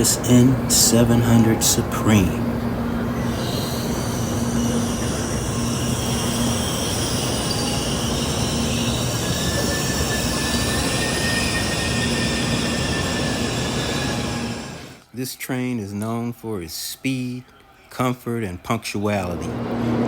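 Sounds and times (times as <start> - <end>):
thin high tone: 0.0 - 15.0
train wheels rushing: 0.0 - 15.0.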